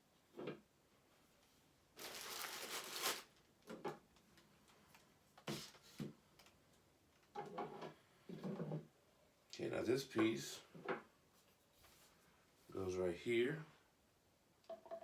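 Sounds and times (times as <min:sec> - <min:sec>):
packaging rustling: 0:02.0 - 0:03.5.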